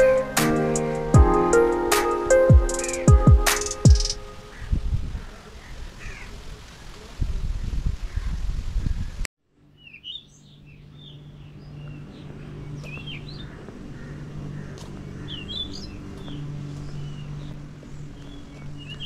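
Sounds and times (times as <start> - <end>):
small birds chirping: 9.8 - 19.0
low hum: 10.4 - 19.0.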